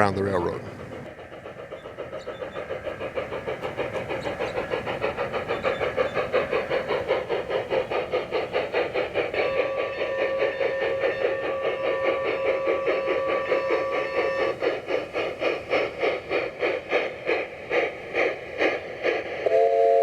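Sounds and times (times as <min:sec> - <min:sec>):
model steam locomotive chuffing: 0:00.0 - 0:20.0
steady train whistle: 0:09.3 - 0:14.6, 0:19.4 - 0:20.0.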